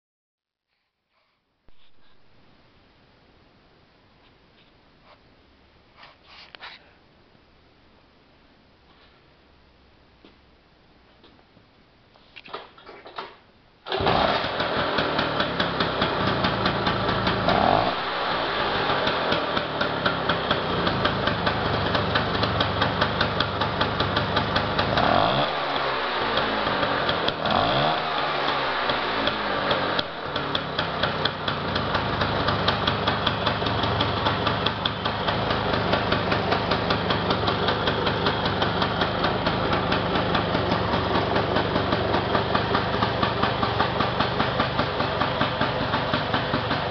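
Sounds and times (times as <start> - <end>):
scooter engine revving and idling: 13.9 - 46.9.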